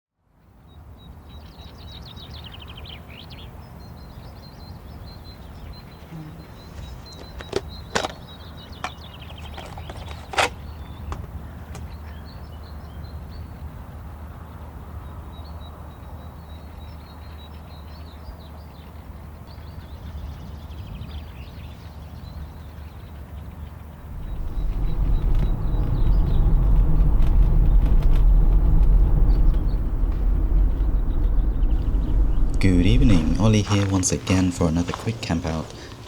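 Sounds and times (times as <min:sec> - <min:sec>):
small birds chirping: 0:00.6 - 0:36.0
steady low rumble: 0:23.9 - 0:36.0.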